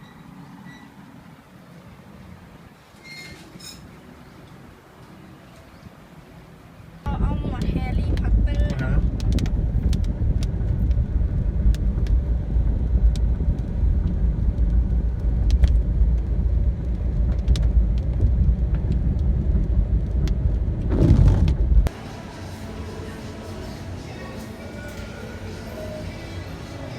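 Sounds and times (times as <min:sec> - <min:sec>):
vehicle rumble from on board: 0:07.0 - 0:24.0.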